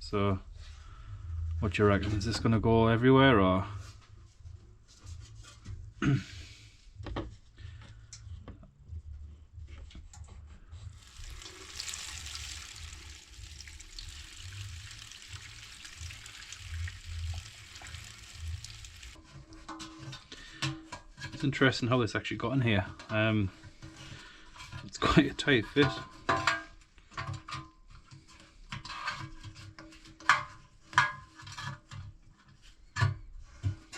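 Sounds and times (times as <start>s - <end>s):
petrol pouring into container: 11.0s - 19.2s.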